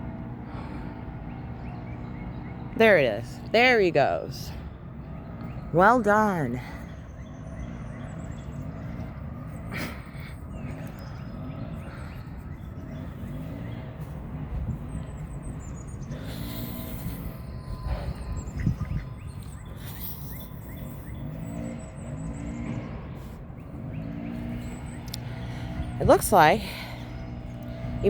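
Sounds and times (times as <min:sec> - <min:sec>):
low outdoor rumble: 0:00.0 - 0:28.0
faint bird chirps: 0:06.6 - 0:22.8.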